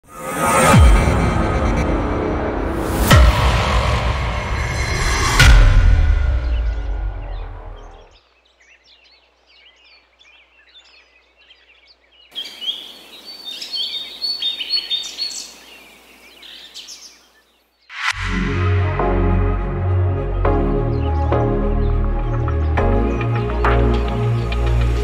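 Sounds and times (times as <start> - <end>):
short whoosh: 0.0 - 8.1, 17.9 - 19.5
wild birds chirping and calling: 7.2 - 18.0, 20.3 - 25.0
steady outdoor hiss: 8.1 - 18.1.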